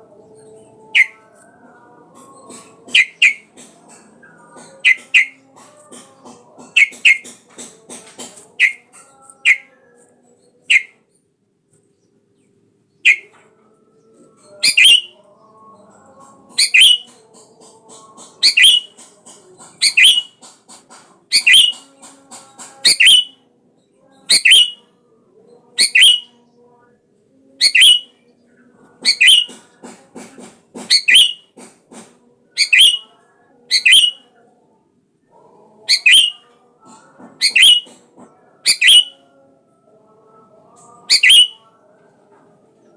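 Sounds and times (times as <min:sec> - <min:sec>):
bird chattering: 0:01.0 - 0:01.2, 0:02.5 - 0:04.0, 0:04.6 - 0:07.4, 0:08.3 - 0:09.7, 0:10.7 - 0:11.0, 0:13.0 - 0:13.3, 0:14.6 - 0:15.1, 0:16.5 - 0:22.0, 0:22.8 - 0:23.3, 0:24.3 - 0:24.8, 0:25.8 - 0:26.3, 0:27.6 - 0:28.1, 0:29.0 - 0:29.6, 0:30.8 - 0:31.5, 0:32.6 - 0:33.1, 0:33.7 - 0:34.2, 0:35.9 - 0:36.4, 0:37.4 - 0:37.9, 0:38.7 - 0:39.2, 0:41.1 - 0:41.6
bird whistled calls: 0:03.0 - 0:03.4, 0:04.8 - 0:05.4, 0:06.8 - 0:07.2, 0:08.6 - 0:08.8, 0:13.1 - 0:13.3, 0:14.6 - 0:15.2, 0:16.6 - 0:17.1, 0:18.4 - 0:18.9, 0:19.8 - 0:20.4, 0:21.3 - 0:21.8, 0:22.9 - 0:23.3, 0:24.3 - 0:24.8, 0:25.8 - 0:26.3, 0:27.6 - 0:28.1, 0:29.1 - 0:29.5, 0:30.9 - 0:31.5, 0:32.6 - 0:33.1, 0:33.7 - 0:34.2, 0:35.9 - 0:36.4, 0:37.4 - 0:37.9, 0:38.7 - 0:39.2, 0:41.1 - 0:41.6.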